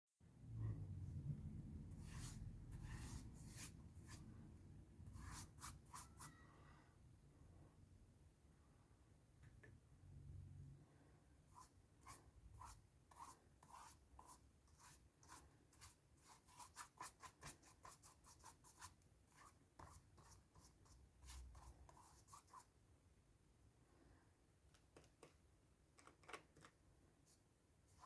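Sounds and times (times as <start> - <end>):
drawing tool scratching paper: 2.0 - 4.2, 5.1 - 6.3, 11.6 - 22.6.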